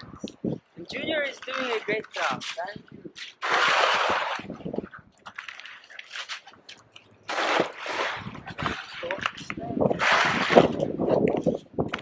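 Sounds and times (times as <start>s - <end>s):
shovel scraping through snow: 3.3s - 4.5s, 7.3s - 9.0s, 10.0s - 10.8s.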